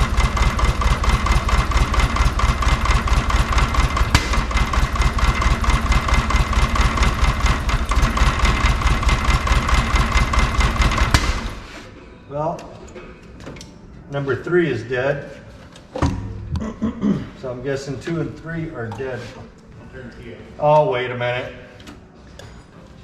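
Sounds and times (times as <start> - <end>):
car engine idling roughly: 0.0 - 11.8.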